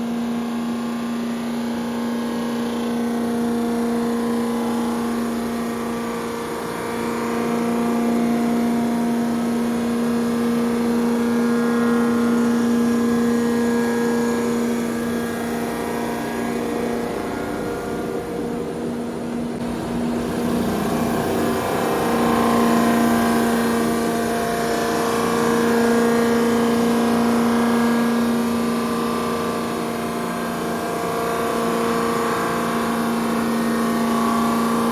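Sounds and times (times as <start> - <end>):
machine tool humming: 0.0 - 34.9.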